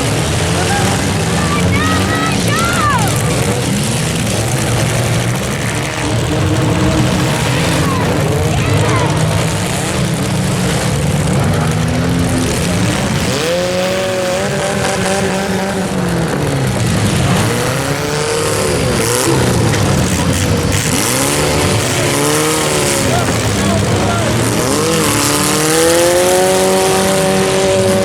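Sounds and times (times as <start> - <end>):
car engines revving: 0.0 - 28.0
din of engines and tyres: 0.0 - 28.0.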